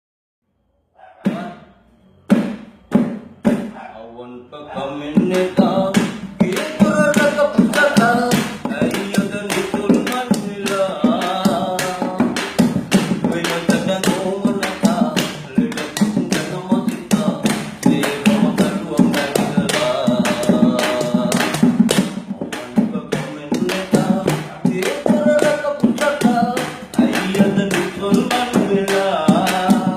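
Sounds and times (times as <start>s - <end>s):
percussive beat: 1.2s - 1.6s, 2.3s - 3.8s, 4.8s - 29.9s
person singing: 1.2s - 1.6s, 4.6s - 29.9s
sharp knocks: 2.3s - 3.8s, 5.2s - 29.9s.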